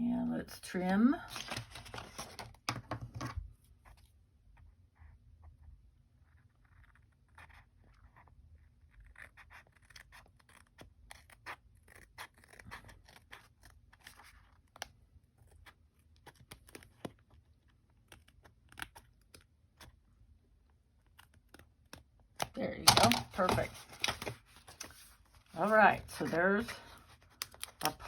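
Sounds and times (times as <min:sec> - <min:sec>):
paper rustling: 0:01.2 - 0:04.0, 0:22.8 - 0:28.0.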